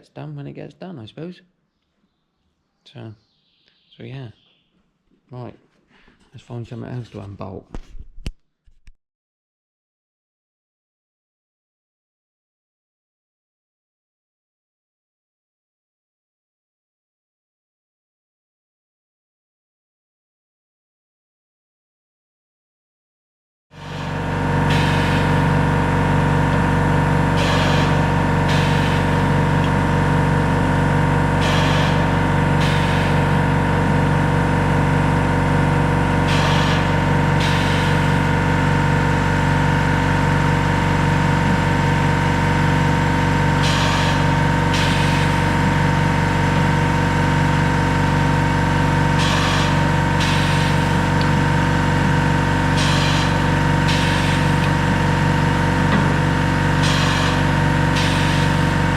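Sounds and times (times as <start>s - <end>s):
motor running steadily: 23.8s - 58.9s.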